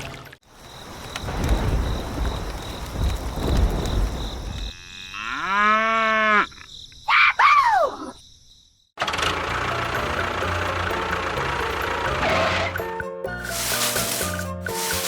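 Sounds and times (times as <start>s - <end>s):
cow mooing: 4.7s - 6.5s.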